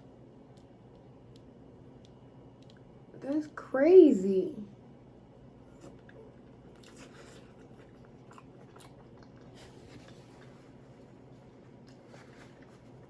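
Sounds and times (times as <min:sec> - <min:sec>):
person chewing food: 0:05.6 - 0:13.0.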